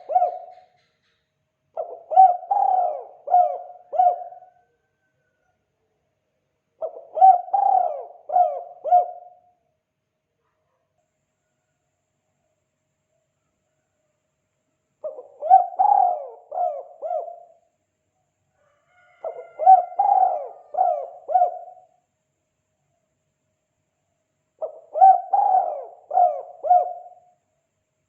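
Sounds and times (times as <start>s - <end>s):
dove cooing: 0.0s - 0.8s, 1.8s - 4.7s, 6.8s - 9.6s, 15.0s - 17.6s, 19.1s - 22.0s, 24.6s - 27.3s.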